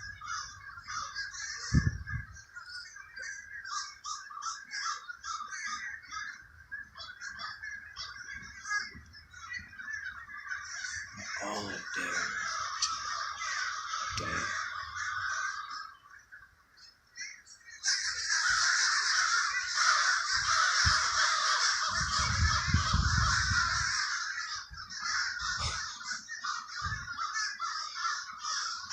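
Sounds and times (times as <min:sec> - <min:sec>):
crows cawing: 0:00.0 - 0:28.9.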